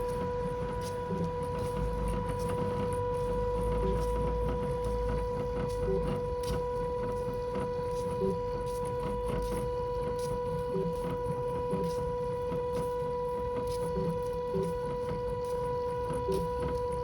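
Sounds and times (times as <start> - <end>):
electric motor whine: 0.0 - 17.0.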